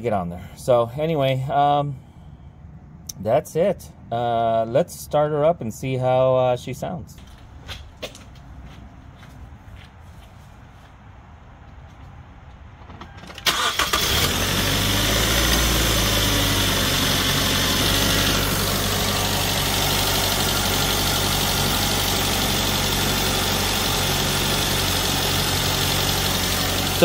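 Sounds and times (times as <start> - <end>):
car engine starting and idling: 12.6 - 27.0.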